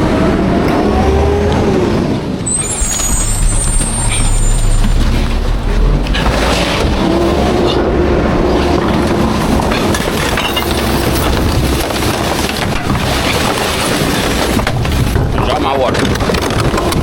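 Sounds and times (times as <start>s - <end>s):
garbage truck engine running: 2.4s - 17.0s
rattles and knocks: 2.5s - 17.0s.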